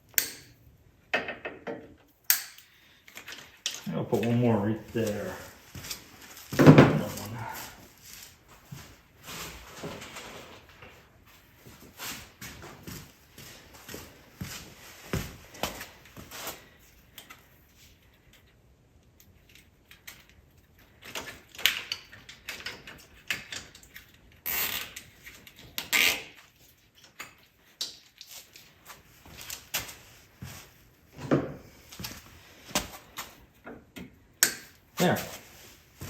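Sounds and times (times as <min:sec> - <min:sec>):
tools clicking and knocking: 0:00.1 - 0:04.4, 0:33.6 - 0:34.8.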